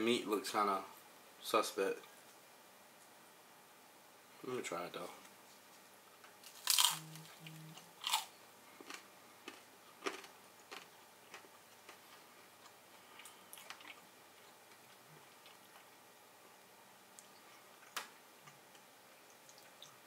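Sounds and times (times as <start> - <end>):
crunchy taco chewing: 6.4 - 15.9
person humming mm: 6.9 - 8.0.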